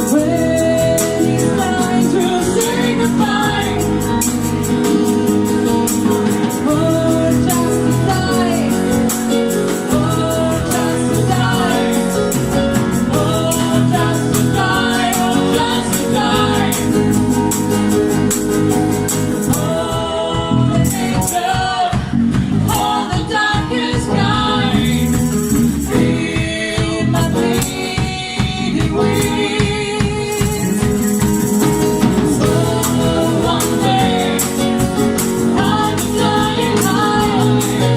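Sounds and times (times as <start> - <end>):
person singing: 0.0 - 5.1, 6.5 - 17.6, 25.9 - 37.9
percussion strokes: 0.0 - 37.9.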